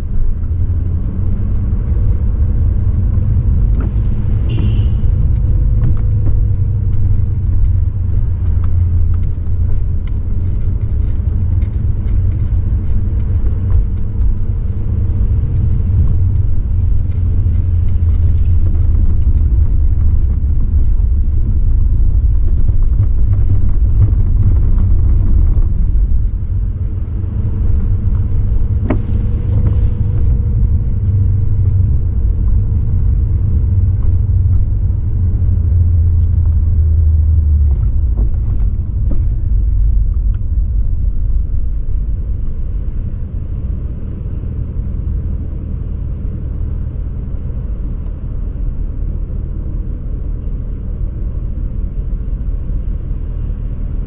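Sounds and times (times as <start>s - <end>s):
car exhaust rumbling: 0.0s - 54.0s.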